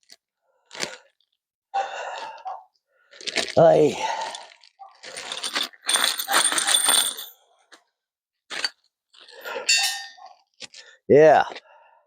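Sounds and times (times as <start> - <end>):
small metal pieces jingling: 5.0 - 7.4, 8.5 - 10.2.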